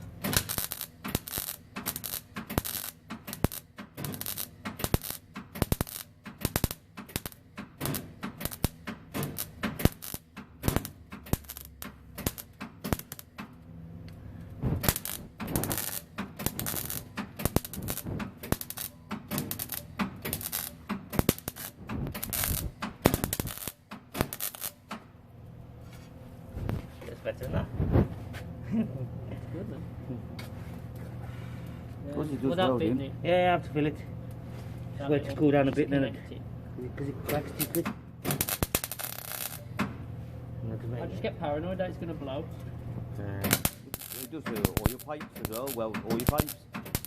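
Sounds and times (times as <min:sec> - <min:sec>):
welding arc crackling: 0:00.0 - 0:13.6, 0:14.6 - 0:24.9, 0:37.3 - 0:39.8, 0:43.4 - 0:47.0.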